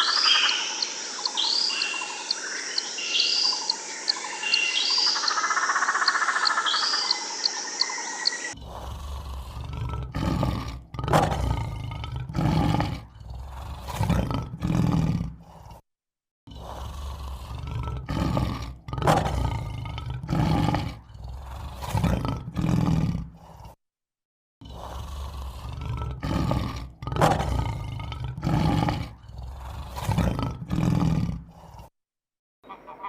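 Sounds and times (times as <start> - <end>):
large animal deep calls: 8.5 - 15.8, 16.5 - 23.8, 24.6 - 31.9.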